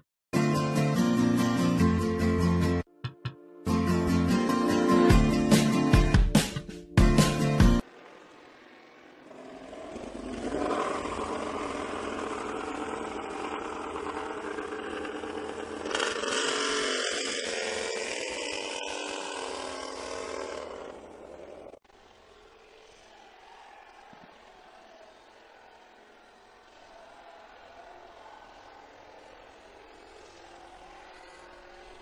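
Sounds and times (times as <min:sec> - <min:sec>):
motorcycle engine running: 0:07.5 - 0:23.0.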